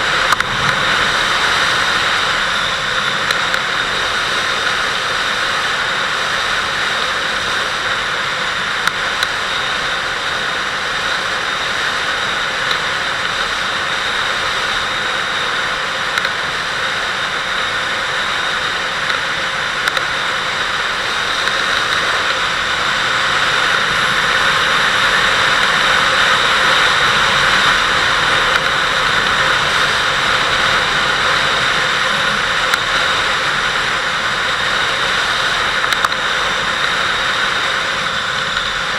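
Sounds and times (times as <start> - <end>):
wind rushing over microphone: 0.0 - 5.9
motorcycle engine running: 0.0 - 13.7, 15.4 - 38.9.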